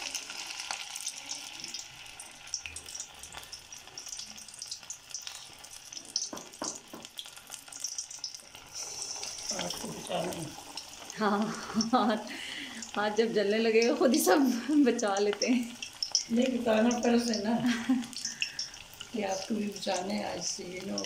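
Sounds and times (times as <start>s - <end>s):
chicken deep-frying in oil: 0.0s - 21.0s
oil popping: 0.0s - 21.0s.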